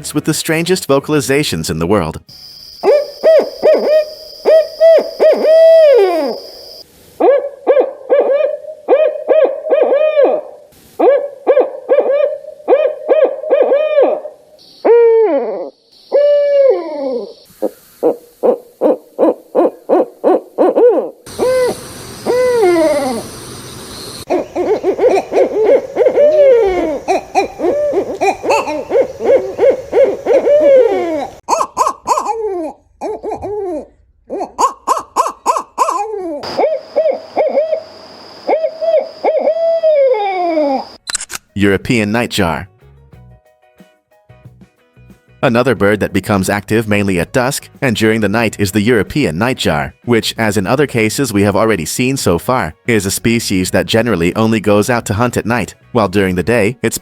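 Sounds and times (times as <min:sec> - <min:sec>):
owls hooting: 0:02.4 - 0:41.0.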